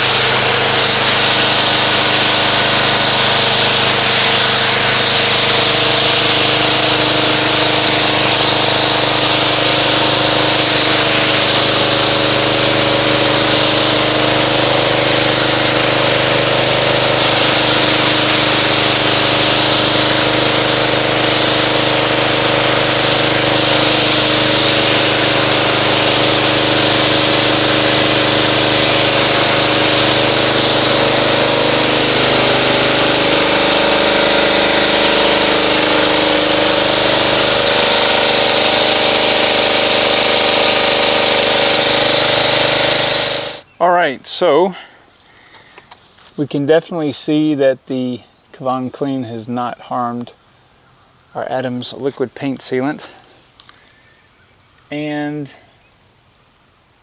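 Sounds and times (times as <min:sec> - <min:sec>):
water jet hissing: 0:00.0 - 0:43.7
pressure washer motor humming: 0:00.0 - 0:44.0.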